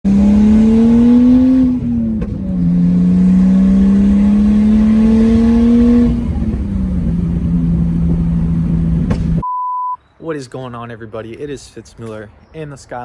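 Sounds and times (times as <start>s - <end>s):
car engine accelerating: 0.0s - 9.4s.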